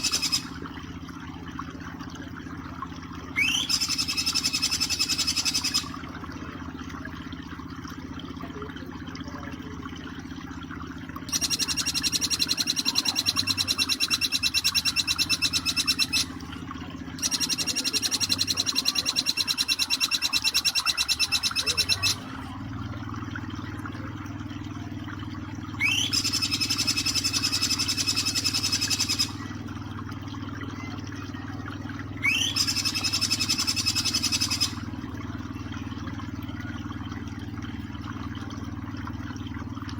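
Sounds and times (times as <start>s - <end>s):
bird high trill: 0.0s - 0.6s, 3.4s - 6.0s, 11.3s - 16.4s, 17.2s - 22.3s, 25.8s - 29.5s, 32.2s - 34.8s
bird rising whistle: 0.0s - 0.6s, 3.4s - 6.0s, 11.3s - 16.4s, 25.8s - 29.4s, 32.2s - 34.8s.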